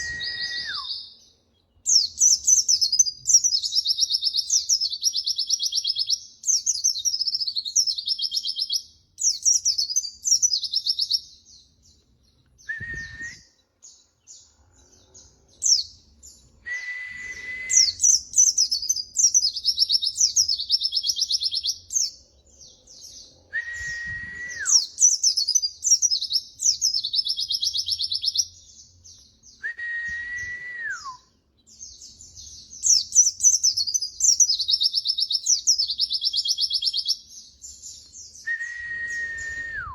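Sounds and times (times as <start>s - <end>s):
bird whistle sliding downward: 0.0s - 1.1s, 12.7s - 13.5s, 16.6s - 18.1s, 23.5s - 24.9s, 29.7s - 31.2s, 38.5s - 39.9s
bird twittering and trills: 0.0s - 16.7s, 17.7s - 29.6s, 31.3s - 39.7s.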